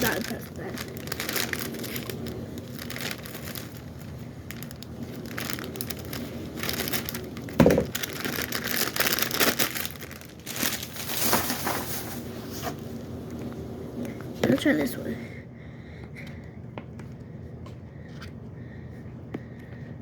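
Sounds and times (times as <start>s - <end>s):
packaging crinkling and rustling: 0.0s - 14.2s.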